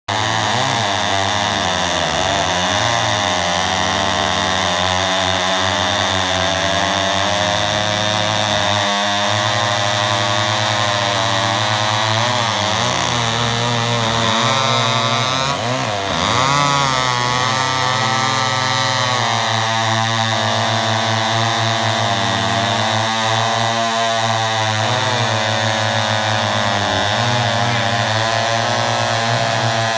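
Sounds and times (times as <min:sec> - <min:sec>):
chainsaw revving: 0:00.1 - 0:29.9
chainsaws running: 0:00.1 - 0:29.9.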